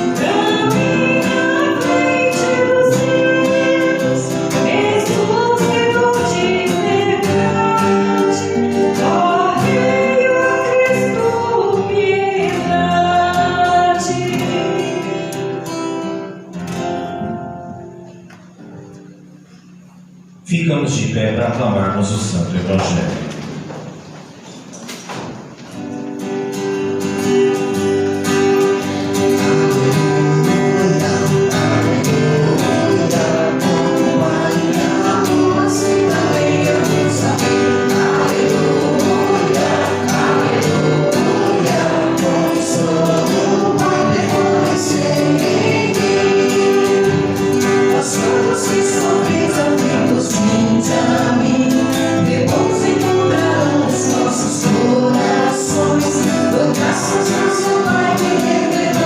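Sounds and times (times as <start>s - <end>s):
choir singing: 0.0s - 15.6s, 26.9s - 59.0s
instrumental accompaniment: 25.0s - 59.0s.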